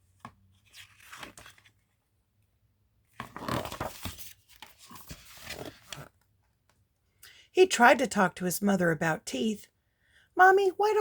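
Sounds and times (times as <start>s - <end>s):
paper page rustling: 0.2s - 2.0s, 3.2s - 6.2s.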